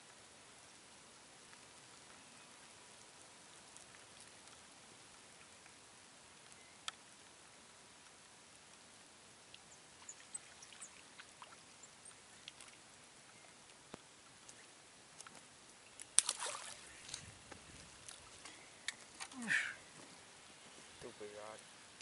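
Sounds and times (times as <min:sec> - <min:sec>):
faint ticks: 0:06.4 - 0:07.4, 0:09.4 - 0:16.2, 0:17.0 - 0:19.4
small high chirps: 0:09.5 - 0:13.6.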